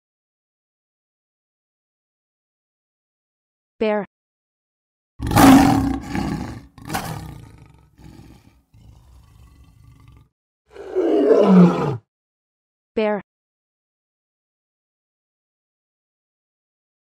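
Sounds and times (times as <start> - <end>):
bear low grumble: 5.2 - 12.0
bear roaring: 5.2 - 12.1.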